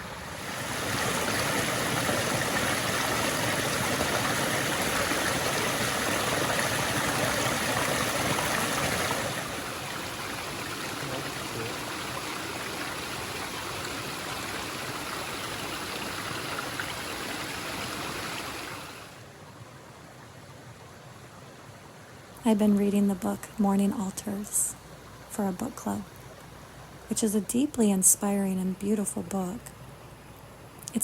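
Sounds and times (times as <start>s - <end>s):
stream running over rocks: 0.0s - 19.4s.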